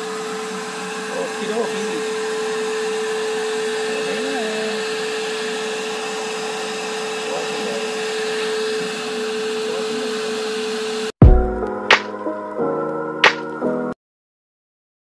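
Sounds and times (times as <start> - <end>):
vacuum cleaner motor whining: 0.0 - 11.2.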